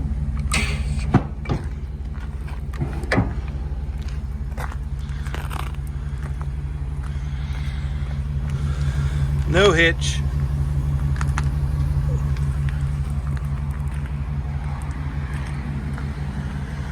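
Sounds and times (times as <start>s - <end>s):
truck engine idling: 0.0s - 16.9s.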